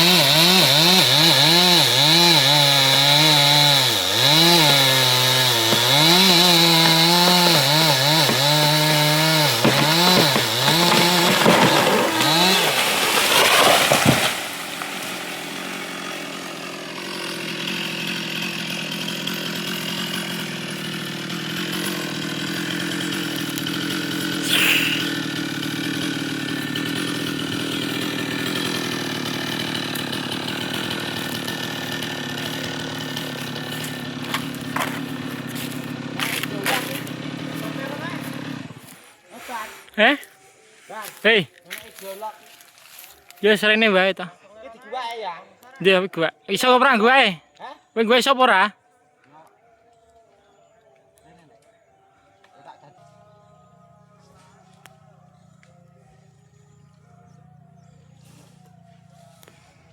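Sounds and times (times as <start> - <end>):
chainsaw cutting wood: 0.0 - 39.6.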